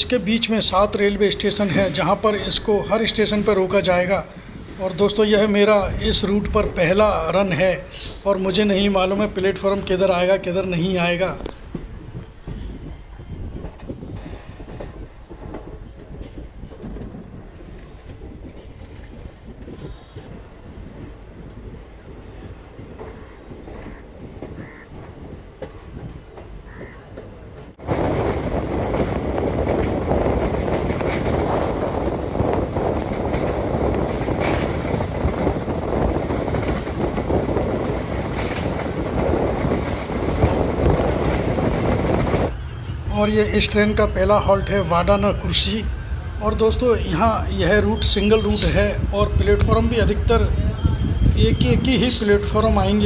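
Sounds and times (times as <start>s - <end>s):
train wheels rumbling on rails: 0.0s - 53.0s
wheel squeal: 12.2s - 15.7s, 17.6s - 20.4s.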